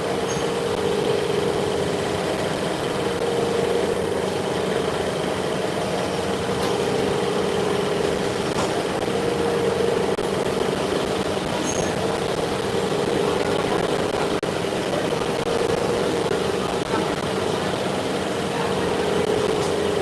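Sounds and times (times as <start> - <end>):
faint high whine: 0.0 - 20.0
machine hum: 0.0 - 20.0.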